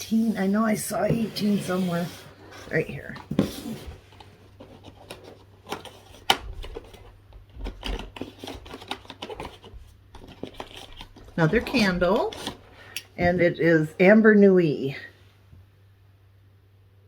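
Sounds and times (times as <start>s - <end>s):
cardboard packaging rustling: 0.1s - 12.6s.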